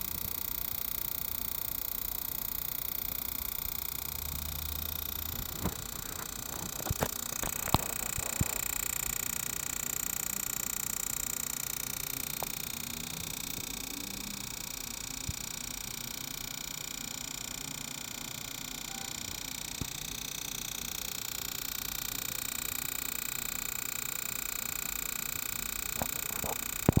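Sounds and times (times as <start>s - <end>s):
cd drive whirring: 4.8s - 10.7s, 11.4s - 14.0s, 17.4s - 20.7s, 25.3s - 27.0s
cd drive clicking: 25.9s - 27.0s.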